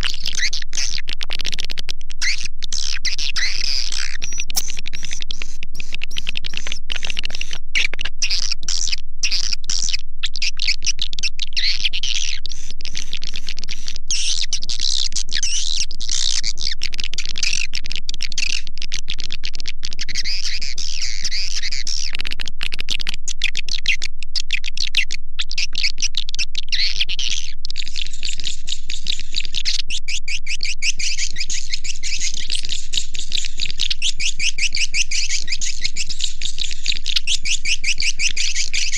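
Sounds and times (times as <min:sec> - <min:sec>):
swiftlets twittering and chirping: 0:27.8 - 0:38.9.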